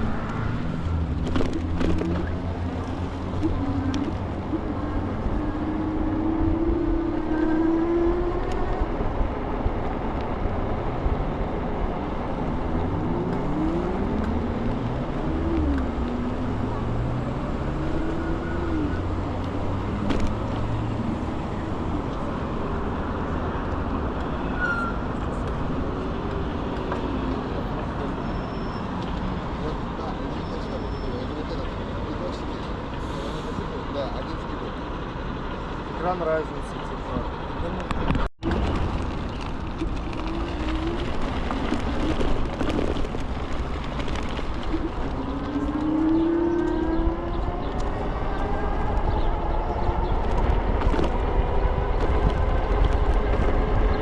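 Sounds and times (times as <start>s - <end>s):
cars passing: 0.0s - 54.0s
road and traffic noise: 0.0s - 54.0s
wind buffeting microphone: 38.0s - 54.0s.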